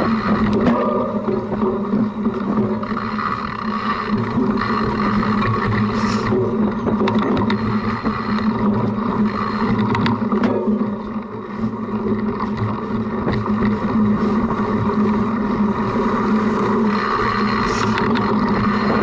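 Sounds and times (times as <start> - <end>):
bike knocks and rattles: 0.0 - 19.0
wind noise: 0.0 - 19.0.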